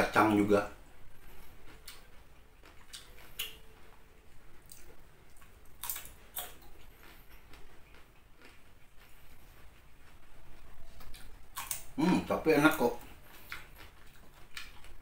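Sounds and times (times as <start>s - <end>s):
crunching raw green beans: 4.6s - 10.2s.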